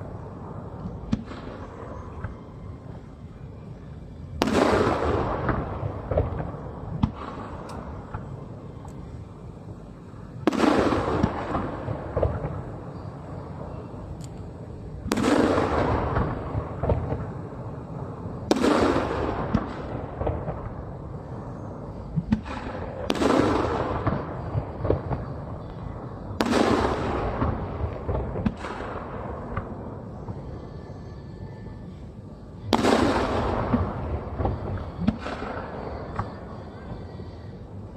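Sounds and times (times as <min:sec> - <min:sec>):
firework booms: 0:04.4 - 0:08.4, 0:10.4 - 0:13.0, 0:15.0 - 0:17.6, 0:18.4 - 0:21.3, 0:22.1 - 0:30.5, 0:32.7 - 0:36.4.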